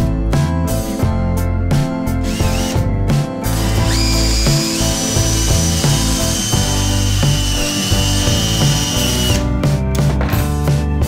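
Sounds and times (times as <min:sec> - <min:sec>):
background music with steady beat: 0:00.0 - 0:11.0
cordless drill boring into wood: 0:02.2 - 0:02.8, 0:03.5 - 0:09.5.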